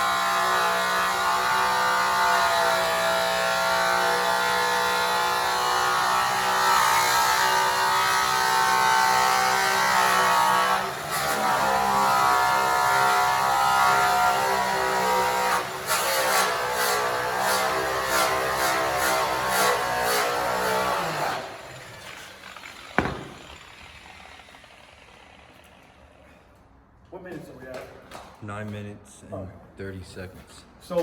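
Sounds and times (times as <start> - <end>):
angle grinder motor whine: 17.7 - 26.3.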